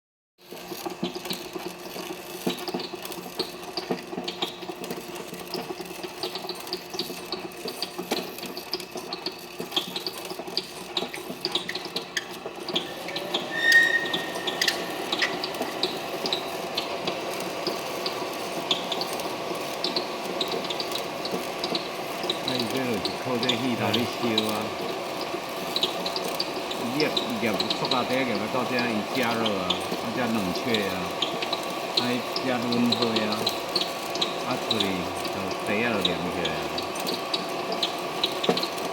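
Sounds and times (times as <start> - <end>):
rapid irregular machine clicks: 0.4 - 12.9, 14.9 - 38.9
brief high tone: 12.8 - 15.8
packaging machine hum: 14.8 - 38.9.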